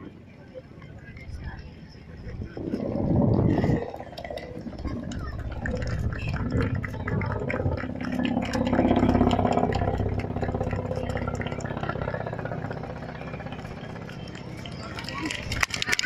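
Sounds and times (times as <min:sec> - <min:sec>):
helicopter engine and rotor drone: 0:03.8 - 0:16.0.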